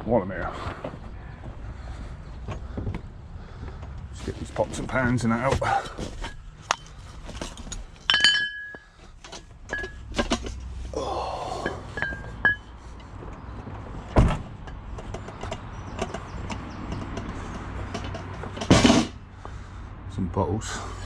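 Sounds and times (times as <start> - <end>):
metal pots and pans clinking: 8.1 - 8.9, 9.7 - 10.5, 11.6 - 12.7
heavy thump: 14.1 - 14.7.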